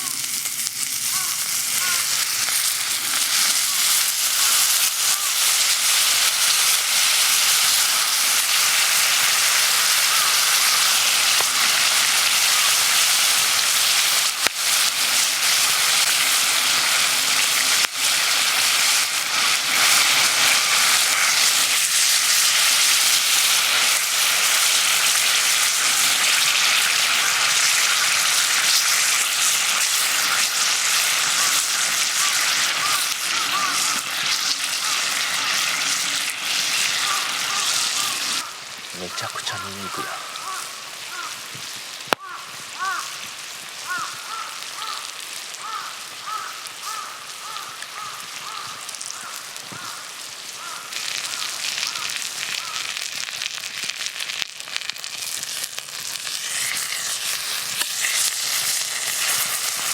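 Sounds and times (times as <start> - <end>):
food sizzling in a hot pan: 0.0 - 59.9.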